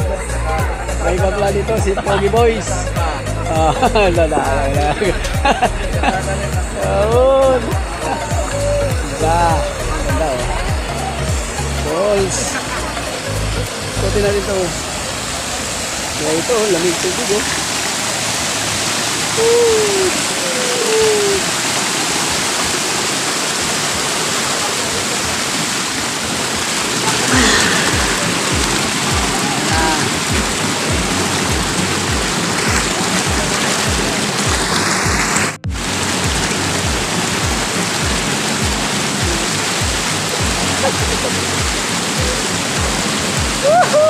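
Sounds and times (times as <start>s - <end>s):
background music with steady beat: 0.0s - 14.8s, 27.3s - 44.0s
water rushing down cascade steps: 0.0s - 44.0s
water gushing from pipes into pool: 5.9s - 44.0s.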